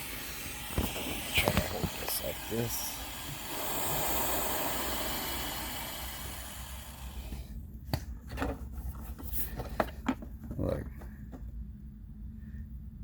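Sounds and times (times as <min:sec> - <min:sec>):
handheld torch hissing: 0:00.0 - 0:07.5.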